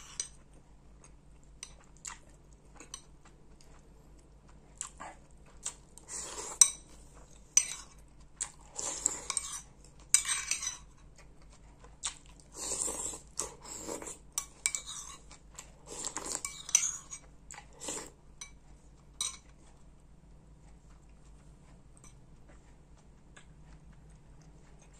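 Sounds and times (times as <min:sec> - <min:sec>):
noisy eating sounds: 0:00.0 - 0:24.9
spoon clinking against a bowl: 0:09.2 - 0:10.9, 0:14.4 - 0:15.2, 0:16.4 - 0:17.2, 0:19.2 - 0:19.5.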